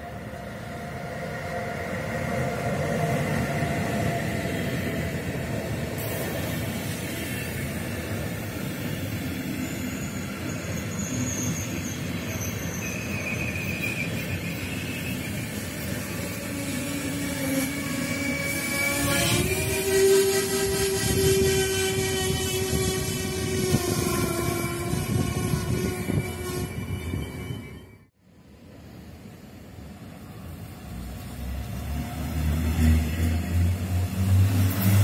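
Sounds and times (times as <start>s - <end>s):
train wheels rumbling on rail: 0.0s - 27.8s, 28.7s - 35.0s
faint wheel squeal: 8.9s - 28.0s.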